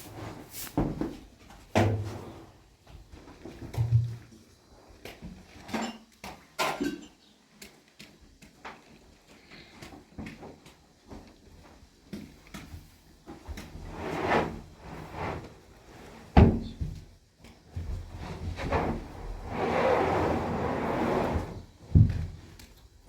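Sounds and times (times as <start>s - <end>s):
steady rubbing noise: 13.8s - 16.2s, 18.1s - 21.7s.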